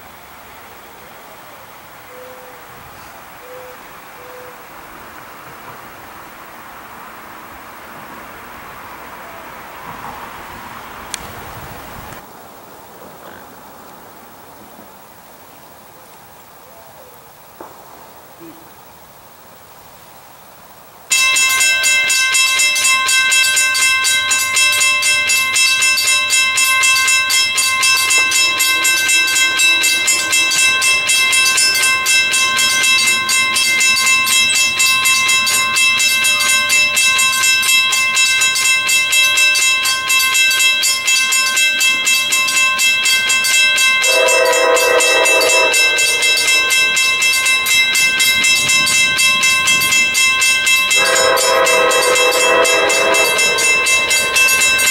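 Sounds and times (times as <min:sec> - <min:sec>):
crossing warning bell ringing: 0:21.1 - 0:54.9
train horn blast: 0:44.0 - 0:49.0, 0:50.9 - 0:54.9.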